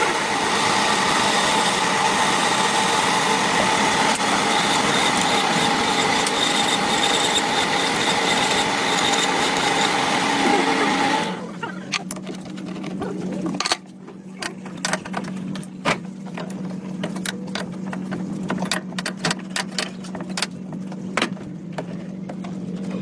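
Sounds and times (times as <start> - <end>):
machine tool whine and grinding: 0.0 - 13.7.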